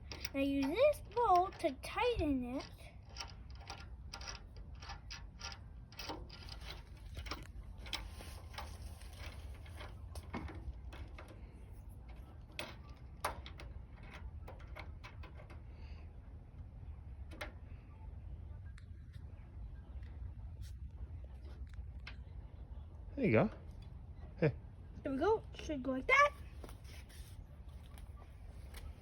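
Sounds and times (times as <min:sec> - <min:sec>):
metal and plastic parts clicking: 0:00.0 - 0:15.7
steady low hum: 0:00.0 - 0:29.0.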